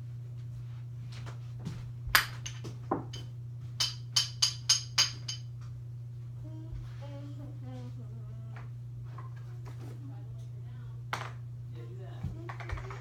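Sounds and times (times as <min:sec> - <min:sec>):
steady low hum: 0:00.0 - 0:13.0
hard object tapping with ringing: 0:02.2 - 0:05.5.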